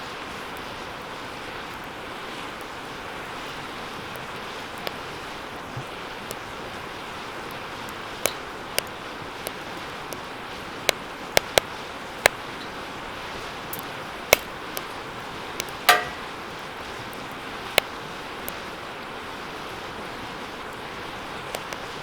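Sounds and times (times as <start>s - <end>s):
fire burning: 0.1s - 22.0s
fire crackling and popping: 0.3s - 22.0s
metallic ping from fire pit: 15.8s - 16.4s.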